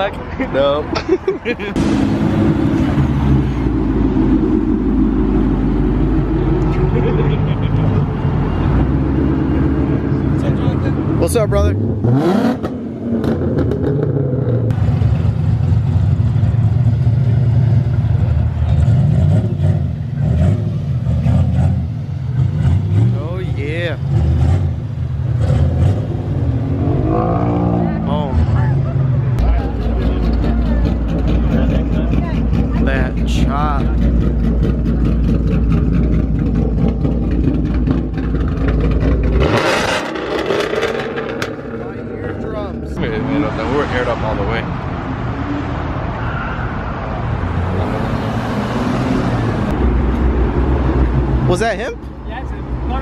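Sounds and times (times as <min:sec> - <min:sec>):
car engine and exhaust pulsing: 0:00.0 - 0:53.0
car engine running: 0:29.4 - 0:44.1.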